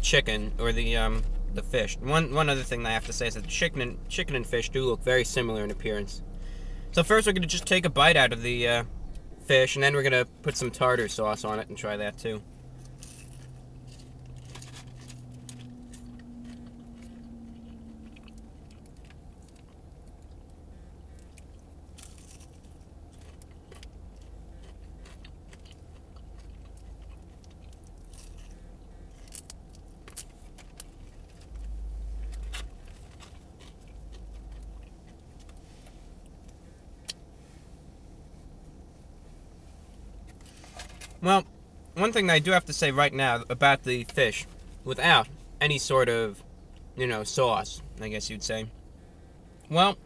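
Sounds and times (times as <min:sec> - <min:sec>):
low rumble inside a car: 0:00.0 - 0:50.0
person chewing with faint crunches: 0:10.1 - 0:37.4.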